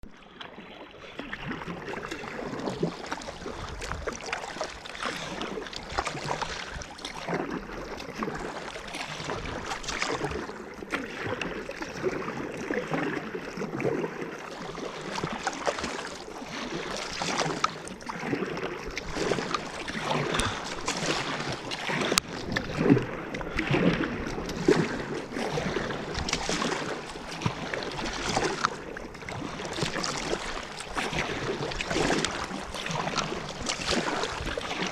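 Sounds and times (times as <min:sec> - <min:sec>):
paddle splashes: 0:00.0 - 0:34.9
water lapping around kayak: 0:00.0 - 0:34.9.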